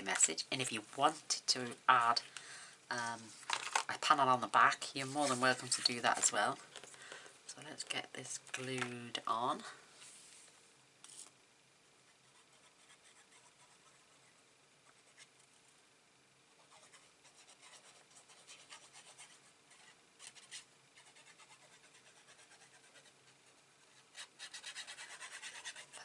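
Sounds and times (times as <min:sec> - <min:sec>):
paper scratching and rubbing: 0:05.0 - 0:06.2, 0:16.6 - 0:23.2, 0:23.9 - 0:26.0.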